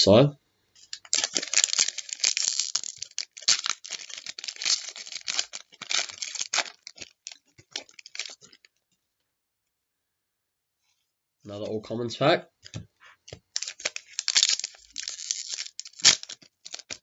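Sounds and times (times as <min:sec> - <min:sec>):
foil wrapper tearing and crinkling: 0:00.8 - 0:08.7, 0:13.5 - 0:17.0.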